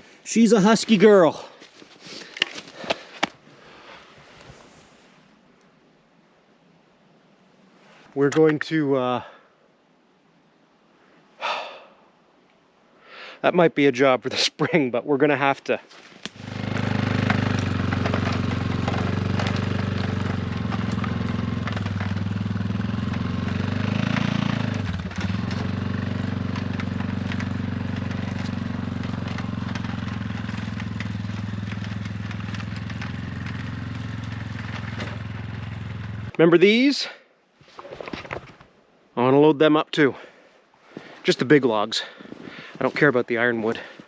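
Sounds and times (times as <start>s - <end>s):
small vehicle engine running: 16.3s - 36.3s.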